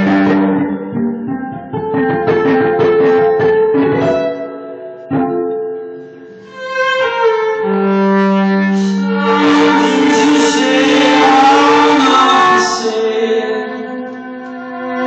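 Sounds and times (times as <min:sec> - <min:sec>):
bowed violin notes: 0:06.0 - 0:15.0
violin pizzicato: 0:06.4 - 0:15.0.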